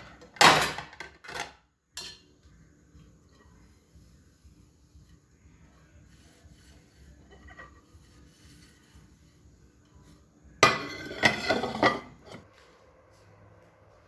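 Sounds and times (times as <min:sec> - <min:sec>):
dishes and cutlery clattering: 0:10.6 - 0:12.4.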